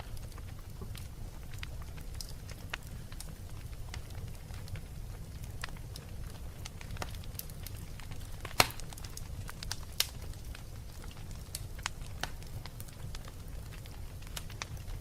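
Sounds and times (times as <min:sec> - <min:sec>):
wood fire crackling: 0:00.0 - 0:15.0
loud sharp snap of fire: 0:06.7 - 0:14.9.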